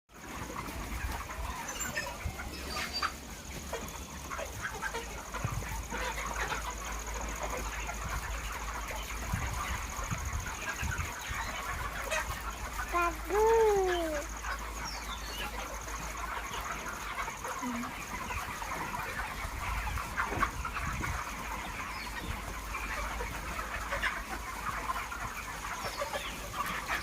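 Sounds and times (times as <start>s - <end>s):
chickens clucking: 0.1s - 27.0s.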